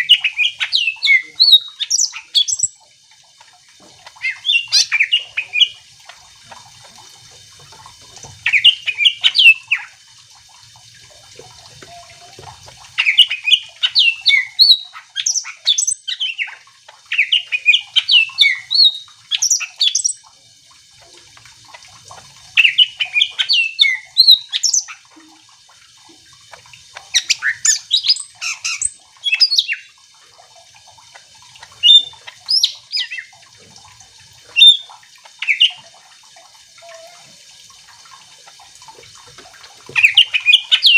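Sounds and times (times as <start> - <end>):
bird chirping and squawking: 0.0 - 2.7, 4.0 - 5.8, 8.4 - 9.9, 11.8 - 20.2, 22.6 - 25.2, 27.0 - 29.9, 31.7 - 33.3, 34.5 - 35.8, 36.8 - 37.4, 39.9 - 40.9.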